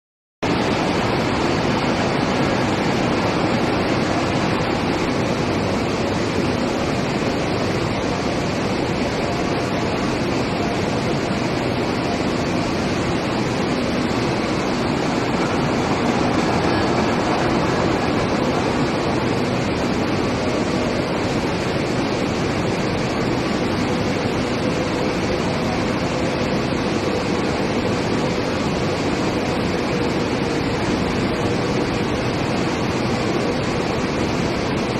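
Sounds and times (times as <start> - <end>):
industrial machinery rushing noise: 0.5 - 34.2.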